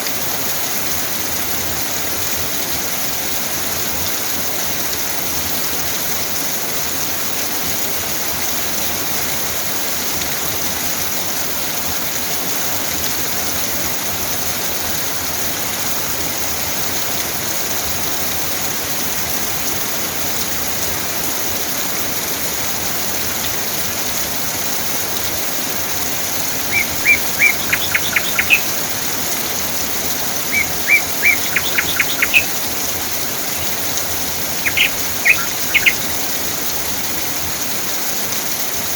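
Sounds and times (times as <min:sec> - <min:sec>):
steady rain falling: 0:00.0 - 0:38.9
bird chirping: 0:26.1 - 0:36.8.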